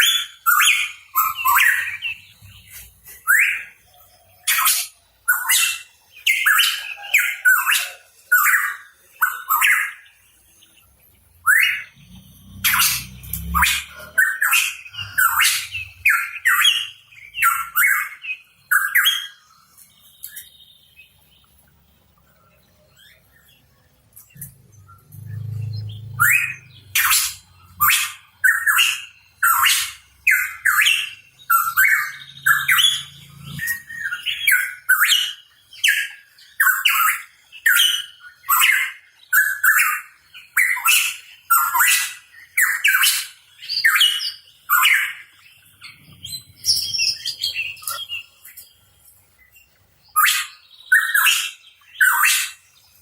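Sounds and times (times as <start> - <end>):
bird harsh downward calls: 11.4 - 19.4, 24.4 - 48.3.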